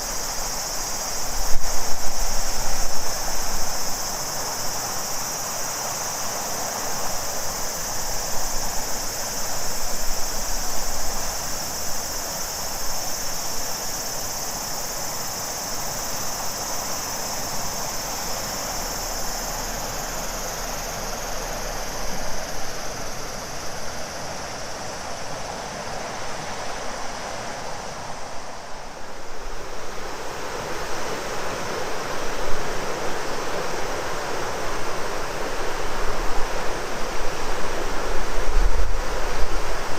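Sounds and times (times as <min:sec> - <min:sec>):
cicadas singing: 0:00.0 - 0:39.9
river rushing: 0:00.0 - 0:39.9.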